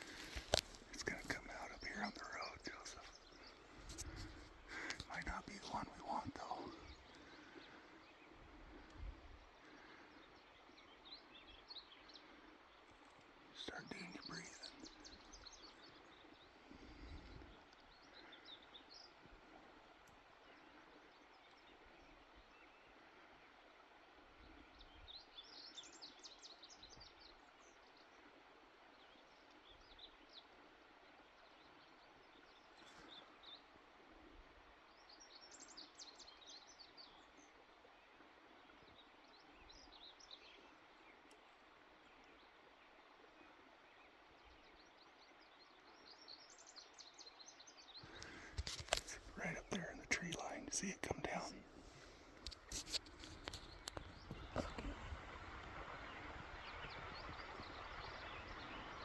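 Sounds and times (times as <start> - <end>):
small bird chirping: 0.0 - 7.2, 48.0 - 59.0
faint outdoor hiss: 0.0 - 59.0.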